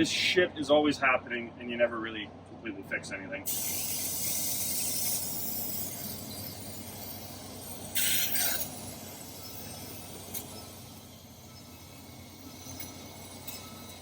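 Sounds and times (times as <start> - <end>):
hissing spray burst: 3.5 - 10.5.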